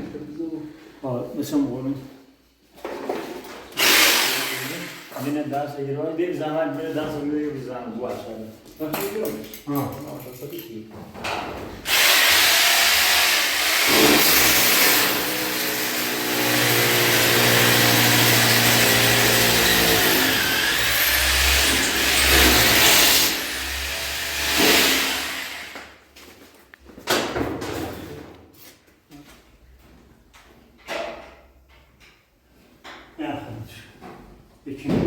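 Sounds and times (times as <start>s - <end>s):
electric power tool whirring: 3.8s - 5.1s, 11.9s - 25.8s.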